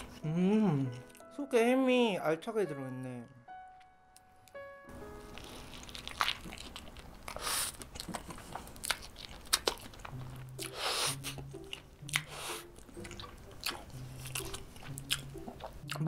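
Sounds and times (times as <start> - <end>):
quiet background music: 0.0 - 16.0
chewing soft sandwich: 5.0 - 16.0.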